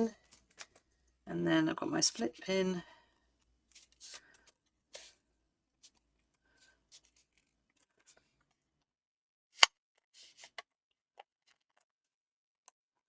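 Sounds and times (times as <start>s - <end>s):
paper rustle: 3.7s - 5.2s.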